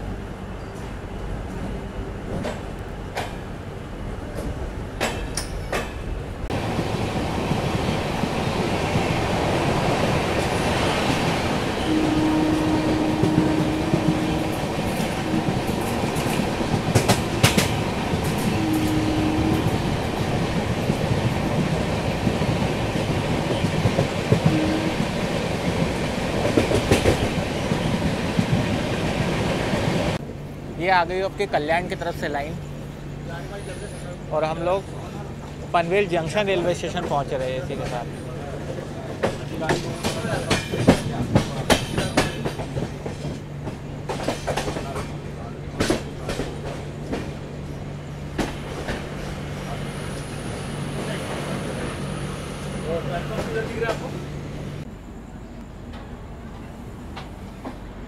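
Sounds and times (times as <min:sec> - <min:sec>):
train coaches rumbling: 0:00.0 - 0:58.0
wheels clicking over rail joints: 0:12.6 - 0:18.9, 0:39.1 - 0:47.4.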